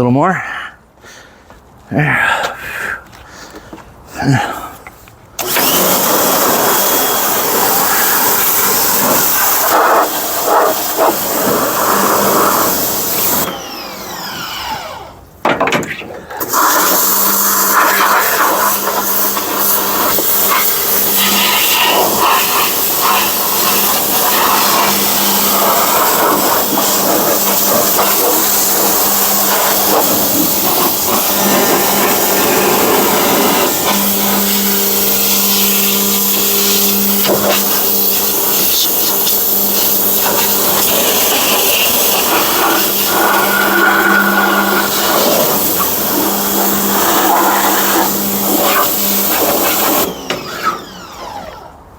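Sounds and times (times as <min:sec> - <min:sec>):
pressure washer hum: 0:05.4 - 0:51.9
water spray hissing: 0:05.5 - 0:13.5, 0:16.5 - 0:50.1.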